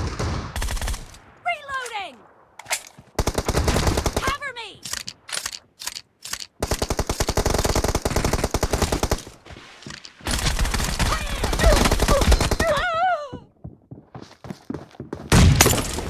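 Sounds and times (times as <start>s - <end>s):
video game automatic gunfire: 3.2s - 4.4s.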